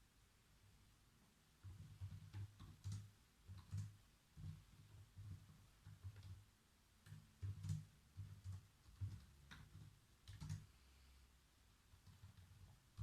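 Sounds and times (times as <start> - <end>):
typing on computer keyboard: 1.6 - 6.4, 7.0 - 10.7, 11.9 - 13.0.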